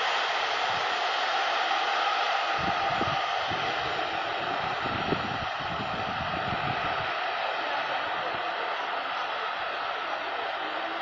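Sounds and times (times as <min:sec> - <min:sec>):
passenger train rushing: 0:00.0 - 0:11.0
wind on microphone: 0:02.6 - 0:07.1.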